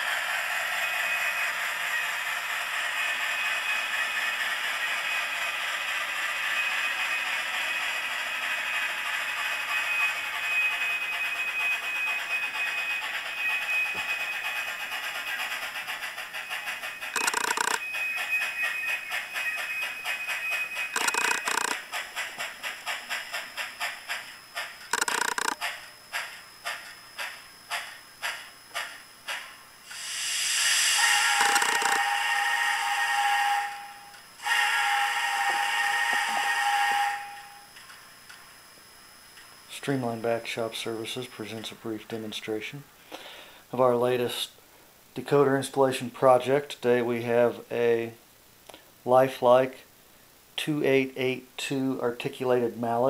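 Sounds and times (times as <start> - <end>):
steam chuffs from small speaker: 0.0 - 21.9, 29.4 - 37.6
steam hiss from tiny speaker: 26.2 - 33.6
short loud whistle blasts: 30.8 - 37.7.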